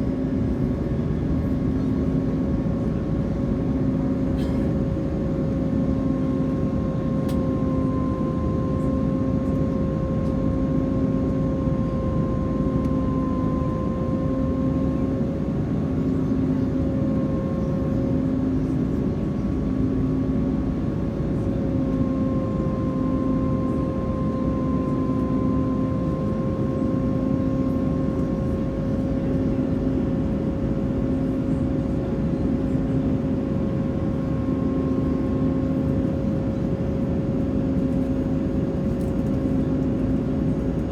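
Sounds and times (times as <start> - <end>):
airliner cabin roar: 0.0 - 40.9.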